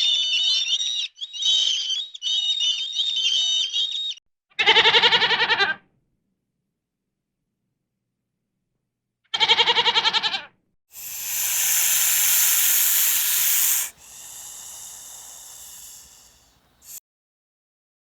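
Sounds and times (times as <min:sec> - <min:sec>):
loud hiss: 0:11.0 - 0:17.0.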